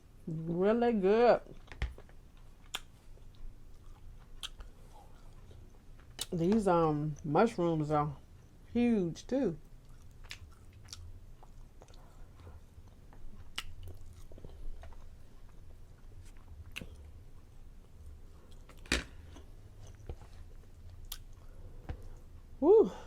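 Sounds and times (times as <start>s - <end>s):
person chewing food: 1.5s - 6.4s, 9.6s - 22.5s.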